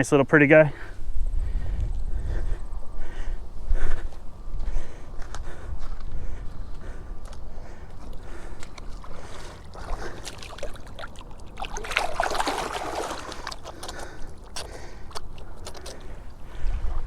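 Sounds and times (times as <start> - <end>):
water splashing and trickling: 7.7 - 16.5.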